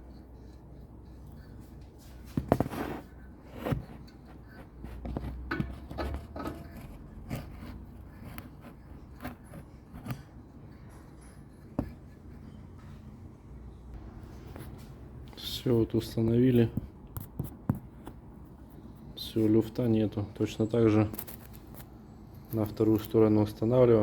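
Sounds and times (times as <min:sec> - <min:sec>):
metal clicks and scrapes of brake parts: 0:00.0 - 0:09.4.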